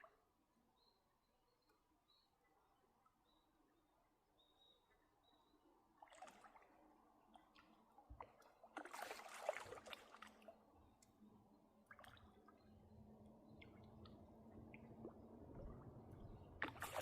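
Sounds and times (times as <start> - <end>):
water splashing and sloshing: 5.9 - 10.7, 11.8 - 17.0.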